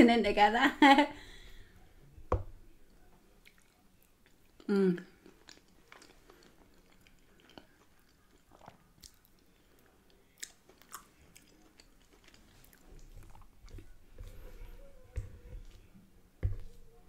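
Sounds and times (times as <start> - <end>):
wet chewing sounds: 3.4 - 15.9.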